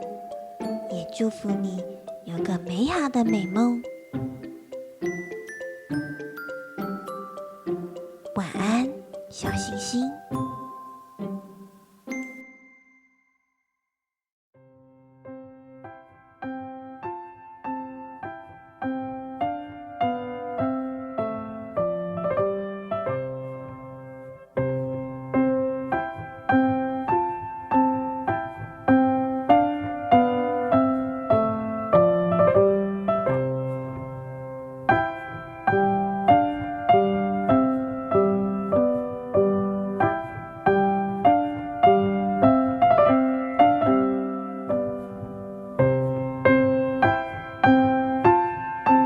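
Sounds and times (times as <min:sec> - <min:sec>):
gentle piano melody: 0:00.0 - 0:12.8, 0:14.6 - 0:49.0.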